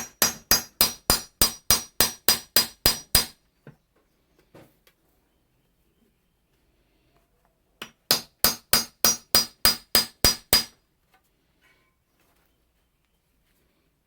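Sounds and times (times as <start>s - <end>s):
hammer striking scythe blade: 0.0s - 3.3s, 8.1s - 10.7s.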